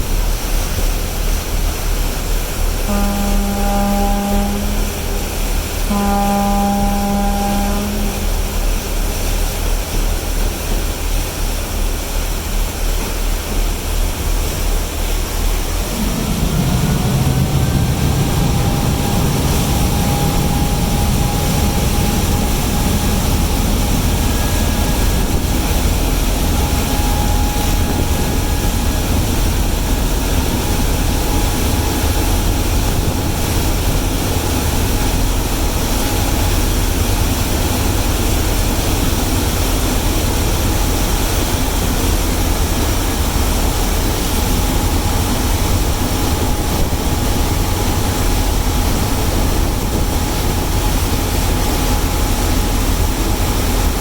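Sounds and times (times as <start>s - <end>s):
heavy engine running with whine: 0.0s - 54.0s
horn blast: 2.8s - 8.7s, 15.6s - 35.2s.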